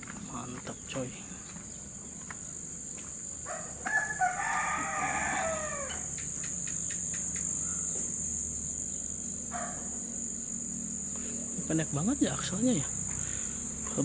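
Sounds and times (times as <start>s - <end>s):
insects buzzing: 0.0s - 14.0s
rooster crowing: 3.4s - 6.2s.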